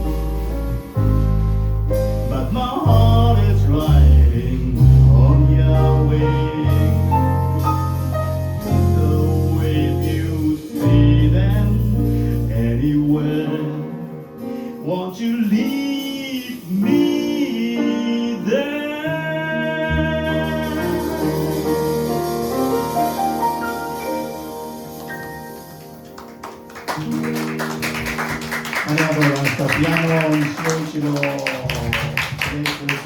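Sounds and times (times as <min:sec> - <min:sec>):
double bass: 0:00.0 - 0:14.4, 0:19.2 - 0:25.0
piano: 0:00.0 - 0:33.0
man singing: 0:02.2 - 0:08.0, 0:08.6 - 0:22.1.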